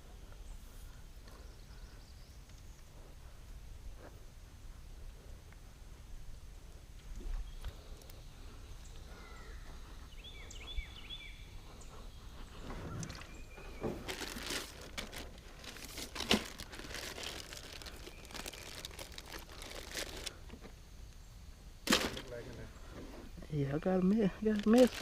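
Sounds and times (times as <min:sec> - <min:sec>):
crunching and crinkling handling: 0:12.7 - 0:20.7, 0:24.0 - 0:25.0.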